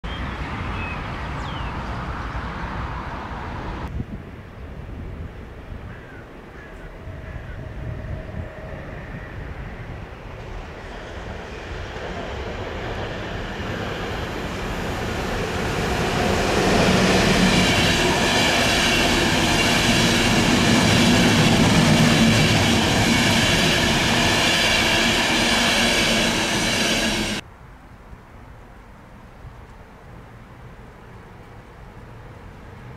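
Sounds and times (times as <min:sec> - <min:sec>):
passenger train wheels on rails: 0:06.9 - 0:27.4
high whine: 0:13.4 - 0:27.4.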